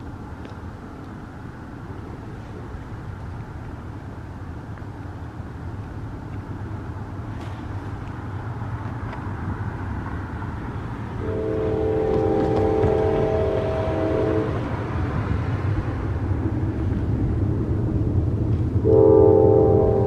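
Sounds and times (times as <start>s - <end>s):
train rumbling: 0.0s - 20.0s
locomotive air horn chord: 11.2s - 15.0s, 18.8s - 20.0s.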